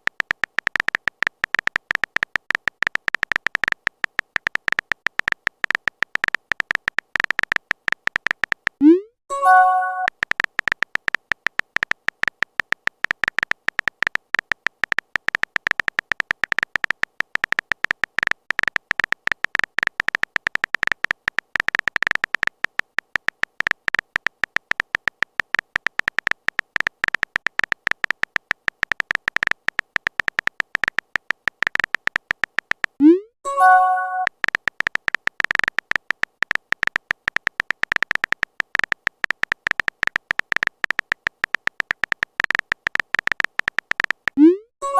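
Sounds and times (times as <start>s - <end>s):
phone keyboard typing clicks: 0.0s - 44.9s
message chime: 8.8s - 10.1s, 33.0s - 34.3s.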